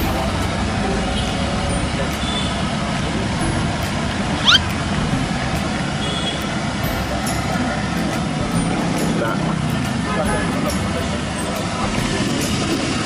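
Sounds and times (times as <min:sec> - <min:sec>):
street traffic noise: 0:00.0 - 0:13.0
sharp rising squeak: 0:04.4 - 0:04.8.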